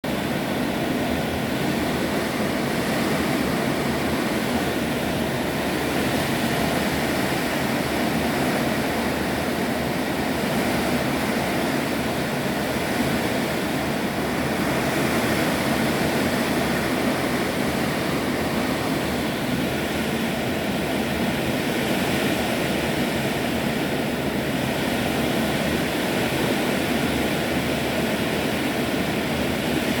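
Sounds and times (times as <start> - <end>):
heavy rain with wind: 0.0 - 30.0.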